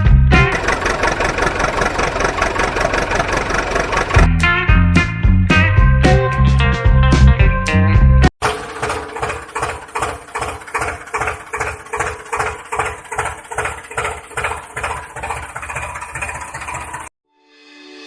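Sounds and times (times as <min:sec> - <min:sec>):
tractor engine idling: 0:00.0 - 0:04.3, 0:08.4 - 0:17.1.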